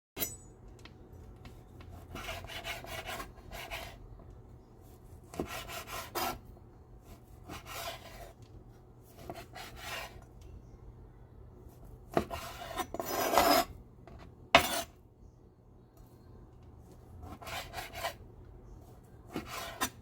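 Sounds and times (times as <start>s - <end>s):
kitchen utensil scraping: 12.2s - 13.8s, 14.6s - 15.0s.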